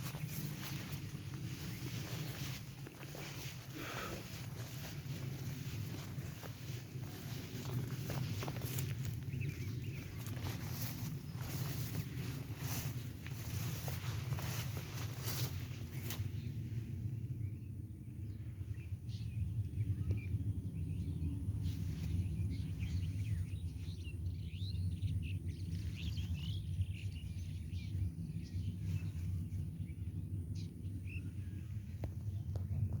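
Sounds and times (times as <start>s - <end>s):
small birds chirping: 0.0s - 16.6s, 17.2s - 32.8s
steady low rumble: 0.0s - 33.0s.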